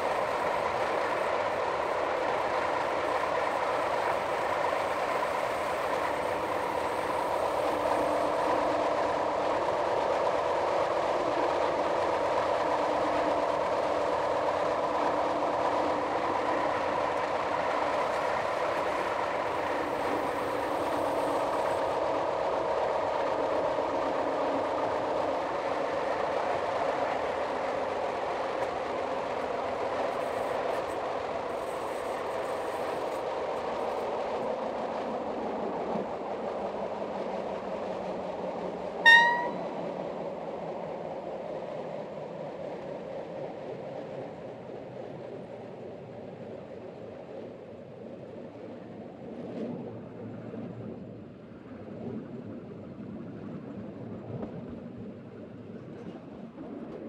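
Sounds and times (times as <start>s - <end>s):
train wheels rumbling on rail: 0.0s - 50.3s
faint held tones: 39.0s - 39.7s.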